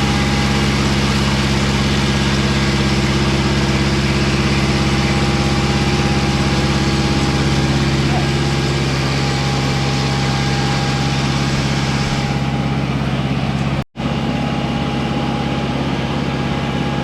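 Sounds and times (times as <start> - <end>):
sawmill engine running: 0.0 - 17.0.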